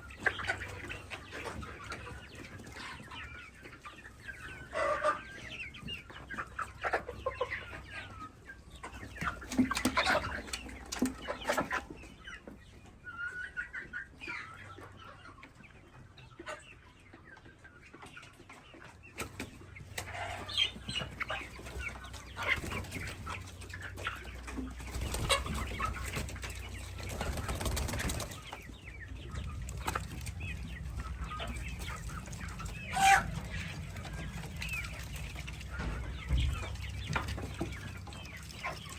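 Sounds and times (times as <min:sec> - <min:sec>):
baby chicks peeping: 0:00.0 - 0:38.9
chickens clucking: 0:00.0 - 0:38.9
low steady rumble: 0:28.7 - 0:38.9.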